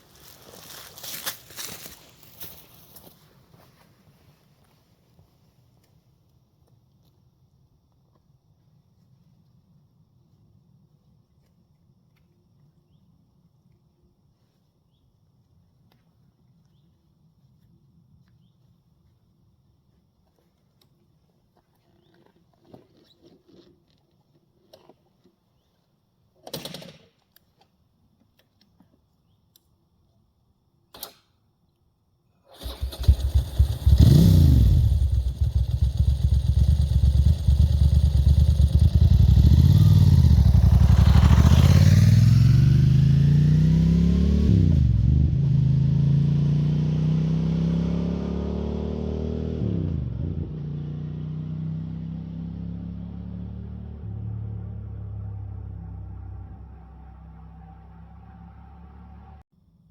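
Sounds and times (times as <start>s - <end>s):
motorcycle engine accelerating: 32.5s - 59.4s.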